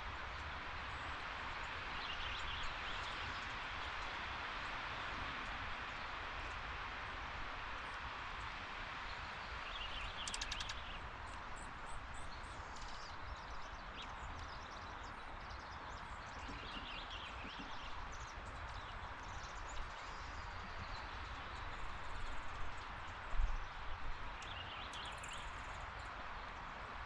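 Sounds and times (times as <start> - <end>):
bird chirps: 9.7 - 11.0.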